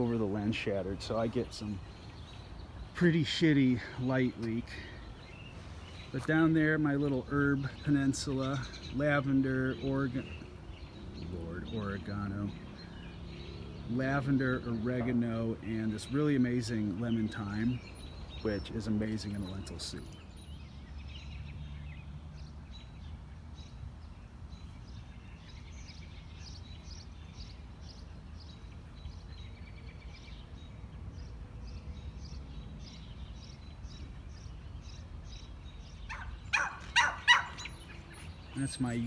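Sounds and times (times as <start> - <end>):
dog barking: 36.1 - 37.6.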